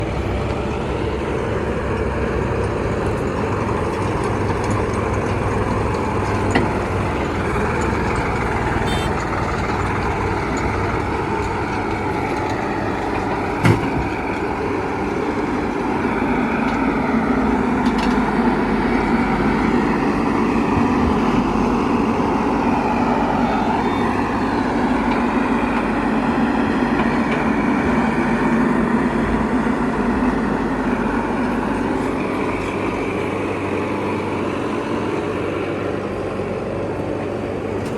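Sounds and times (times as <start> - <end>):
diesel machinery engine running: 0.0 - 37.9.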